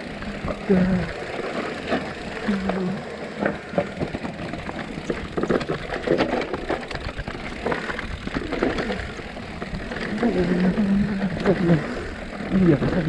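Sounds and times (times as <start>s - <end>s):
bike tyres rolling over rocks: 0.0s - 13.0s
bike clattering knocks: 1.4s - 11.9s.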